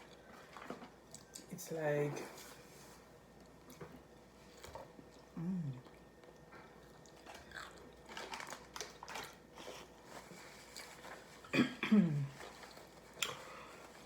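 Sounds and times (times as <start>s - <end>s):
chewing and crunching food: 0.0s - 1.6s, 3.2s - 11.5s, 12.2s - 14.0s
person humming mm: 5.4s - 5.8s.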